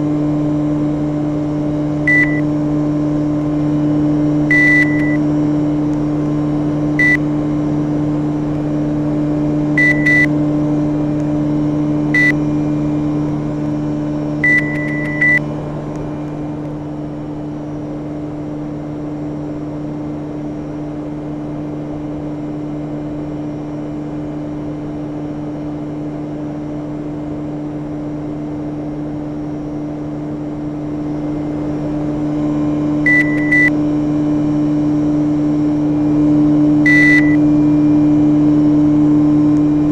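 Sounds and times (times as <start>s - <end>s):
short high-pitched beeps: 2.1s - 2.4s, 4.5s - 5.2s, 7.0s - 7.2s, 9.8s - 10.3s, 12.2s - 12.4s, 14.4s - 15.4s, 33.1s - 33.7s, 36.9s - 37.4s.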